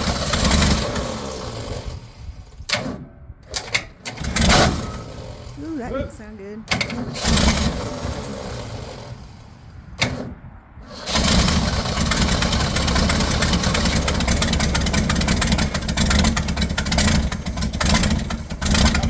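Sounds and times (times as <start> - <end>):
car engine cranking and running: 11.0 - 19.0.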